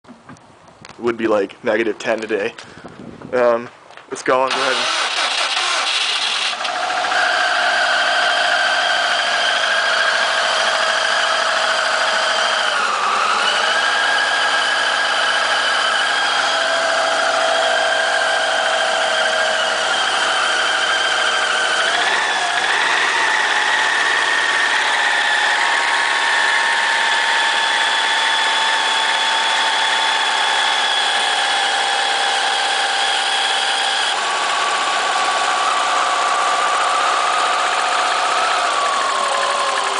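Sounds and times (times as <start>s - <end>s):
car engine idling: 4.5s - 39.9s.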